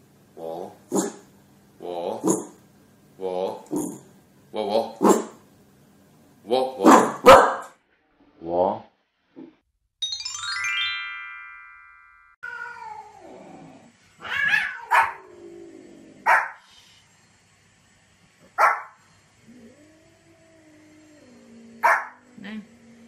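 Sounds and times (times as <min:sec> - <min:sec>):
dog barking sharply: 0:06.8 - 0:07.8, 0:16.3 - 0:16.6, 0:18.6 - 0:19.0, 0:21.8 - 0:22.2
falling chime tones: 0:10.0 - 0:12.4
cat meowing: 0:12.4 - 0:13.3, 0:14.2 - 0:15.2.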